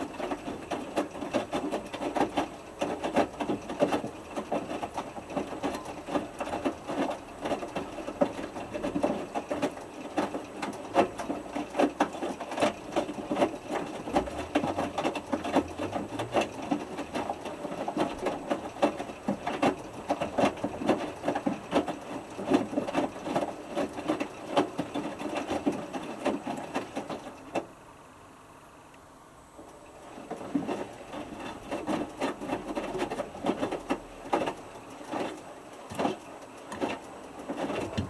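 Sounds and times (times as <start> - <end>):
water slapping inside drum: 0.0 - 27.7, 30.0 - 38.0
washing machine drum turning: 37.6 - 38.0.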